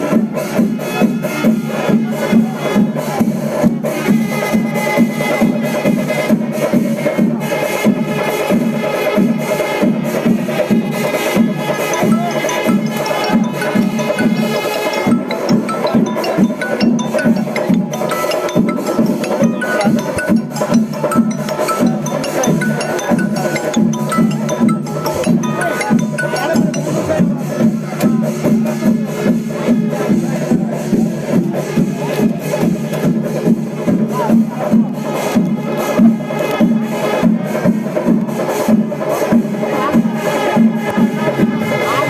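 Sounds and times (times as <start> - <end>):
percussion beat: 0.0 - 42.0
held pitched tones: 11.7 - 27.4.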